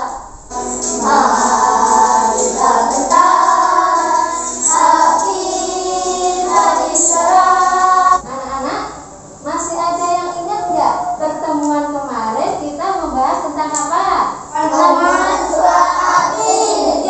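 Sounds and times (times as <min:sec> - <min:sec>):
children singing in unison: 0:00.0 - 0:08.2, 0:14.6 - 0:17.0.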